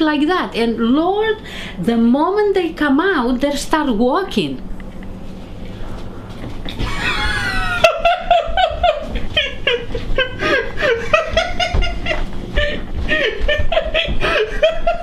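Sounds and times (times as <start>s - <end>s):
person snickering: 6.4s - 15.0s.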